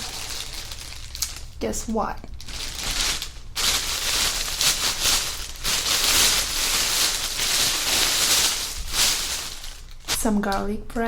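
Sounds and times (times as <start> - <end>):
food packaging crinkling: 0.0 - 1.6, 2.2 - 10.5.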